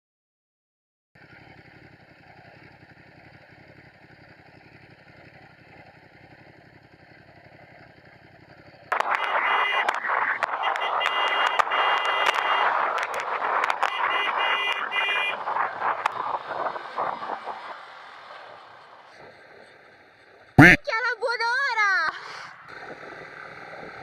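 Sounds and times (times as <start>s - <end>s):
muffled motorcycle engine idling: 1.2s - 10.2s
wind and engine noise: 1.2s - 24.0s.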